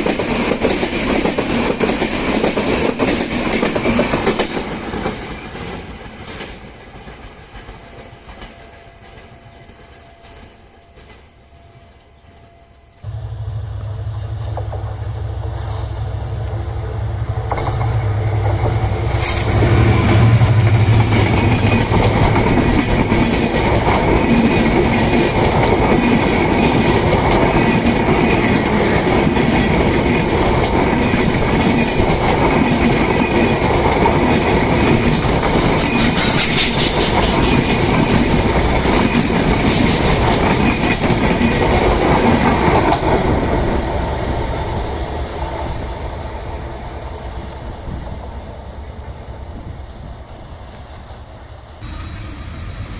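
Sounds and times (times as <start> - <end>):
train wheels clattering on rails: 0.0 - 13.2, 16.4 - 46.1
locomotive engine hum: 13.0 - 24.9.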